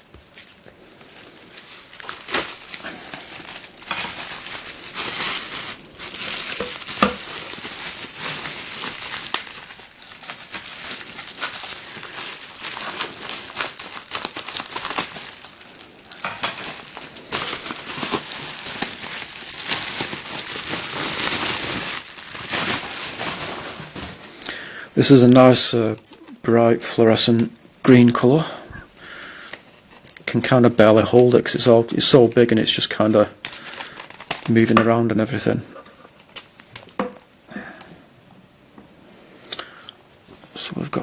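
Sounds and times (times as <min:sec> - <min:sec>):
plastic packaging crinkling: 0:00.0 - 0:37.8.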